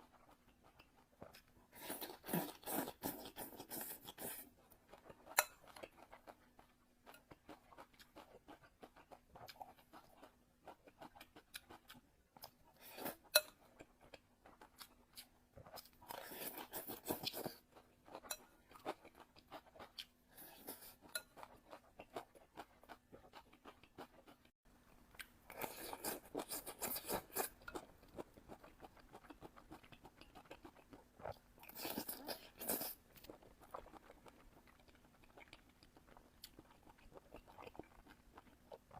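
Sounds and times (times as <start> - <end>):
chewing food: 0.0 - 38.9.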